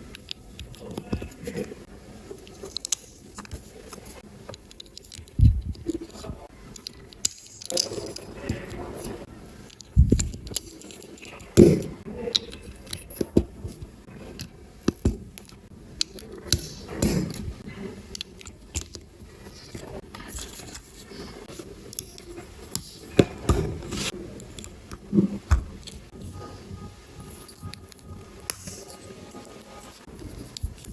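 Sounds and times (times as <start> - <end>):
plastic bricks clicking: 2.5 - 17.5, 18.1 - 21.0.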